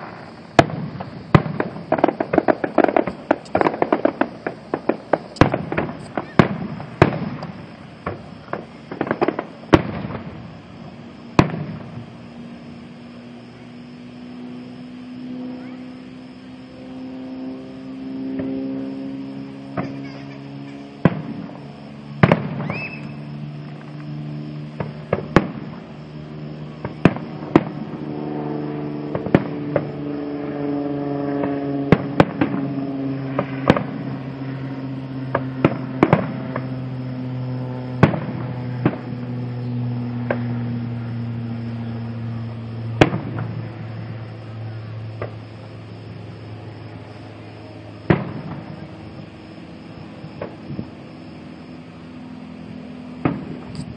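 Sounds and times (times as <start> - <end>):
fireworks bangs: 0.0 - 16.9, 18.3 - 34.4, 35.3 - 51.1, 53.1 - 53.9
low drone sinking in pitch: 11.9 - 53.9.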